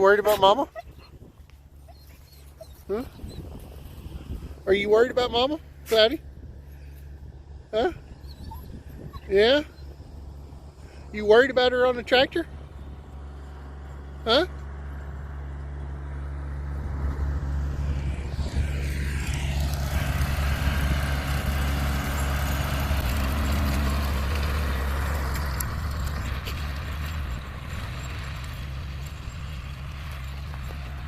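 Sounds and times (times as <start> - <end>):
tractor engine: 0.0 - 31.0
rotary mower running: 9.2 - 31.0.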